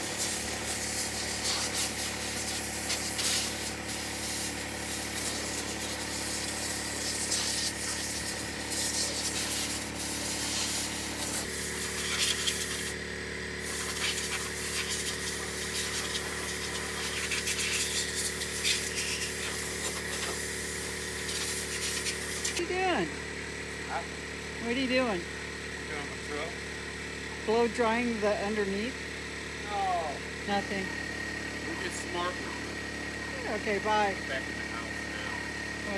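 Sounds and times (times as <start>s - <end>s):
air blow gun hissing: 0.0s - 13.0s, 13.6s - 22.6s
motor hum: 0.0s - 35.9s.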